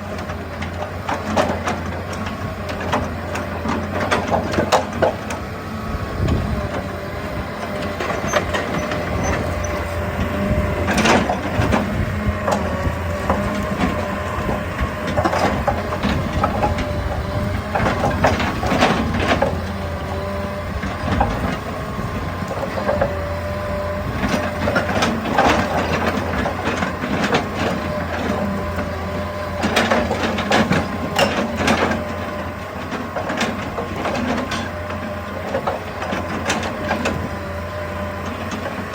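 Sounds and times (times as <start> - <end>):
excavator engine droning: 0.0 - 38.9
hydraulic whine: 5.0 - 26.2.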